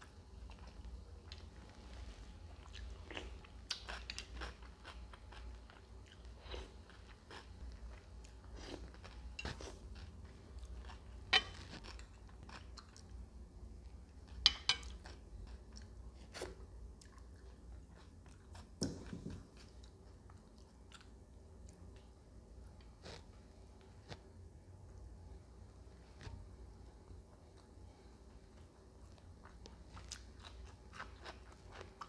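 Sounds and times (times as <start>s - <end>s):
chewing and biting food: 0.1s - 13.2s, 26.9s - 32.0s.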